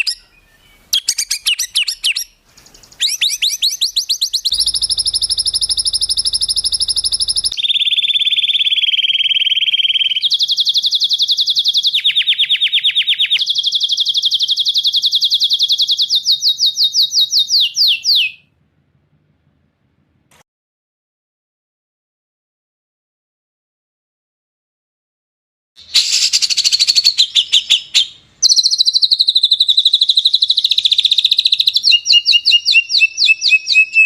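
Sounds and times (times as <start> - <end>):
songbird trilling: 0.0 - 18.4, 25.8 - 34.0.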